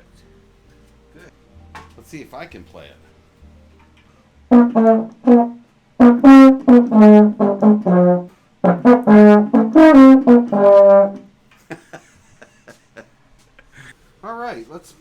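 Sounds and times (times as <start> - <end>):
baritone horn notes: 4.4 - 11.3.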